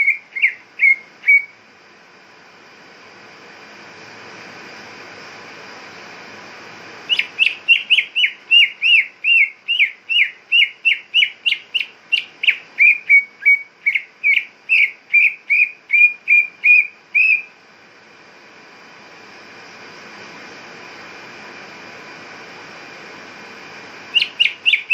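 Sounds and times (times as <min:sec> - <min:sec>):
bird whistling down-slurred notes: 0:00.0 - 0:01.6, 0:07.1 - 0:17.5, 0:24.1 - 0:24.9
background hiss: 0:00.0 - 0:24.9.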